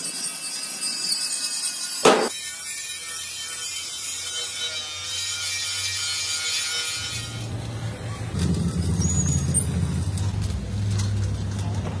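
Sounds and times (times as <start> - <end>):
truck engine running: 7.5 - 12.0.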